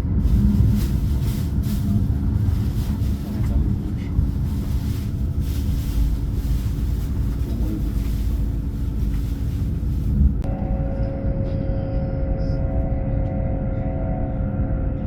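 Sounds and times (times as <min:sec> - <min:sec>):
train rumble inside carriage: 0:00.0 - 0:15.0.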